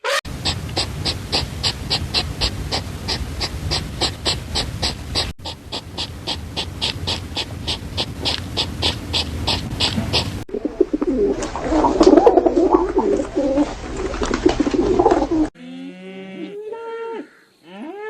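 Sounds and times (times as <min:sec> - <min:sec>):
animal panting rapidly: 0:00.3 - 0:10.5.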